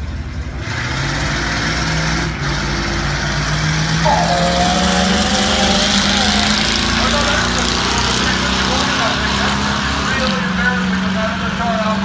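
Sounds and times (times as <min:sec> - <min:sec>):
higher-pitched engine note: 0:04.0 - 0:08.6
low engine note: 0:04.0 - 0:09.5.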